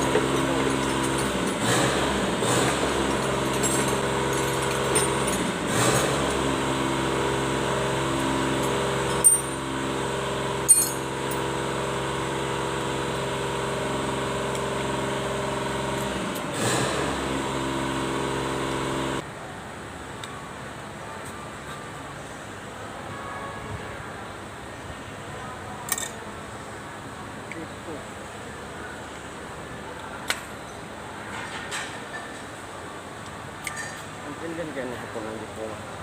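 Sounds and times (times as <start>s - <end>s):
tractor diesel engine running: 0.0s - 19.3s.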